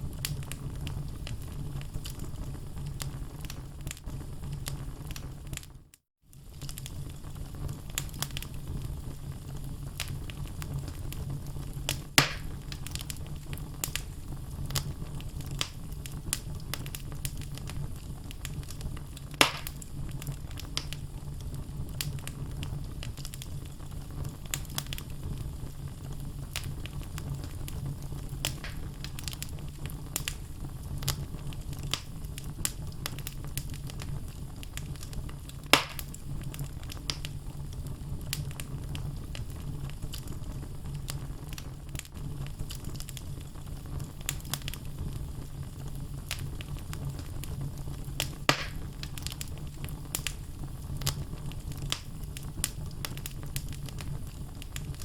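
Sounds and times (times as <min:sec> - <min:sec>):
wood fire burning: 0:00.0 - 0:55.0
logs popping loudly: 0:12.2 - 0:12.5, 0:19.4 - 0:19.8, 0:28.6 - 0:28.9, 0:48.5 - 0:48.9.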